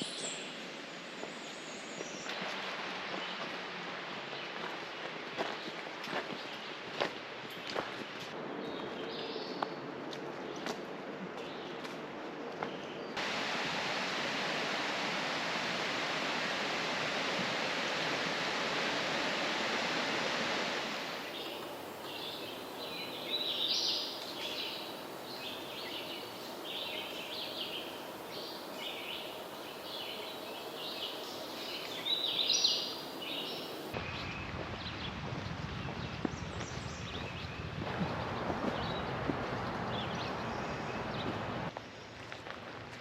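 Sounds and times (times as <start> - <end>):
rushing falling water: 2.3 - 5.5, 13.2 - 36.9
faint hiss: 13.2 - 34.1
birds singing: 21.3 - 34.3.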